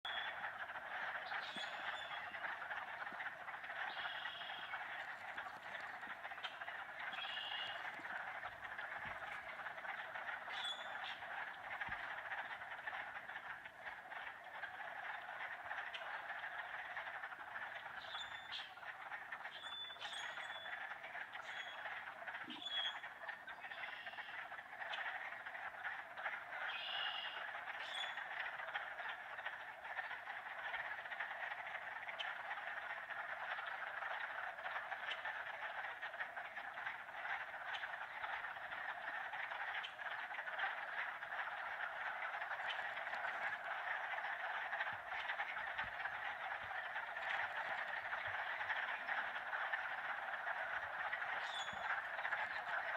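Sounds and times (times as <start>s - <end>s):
sharp high frog peeps: 0.0s - 17.2s, 44.4s - 52.9s
chorus of frog calls: 0.0s - 52.9s
high clear frog peeps: 0.0s - 52.9s.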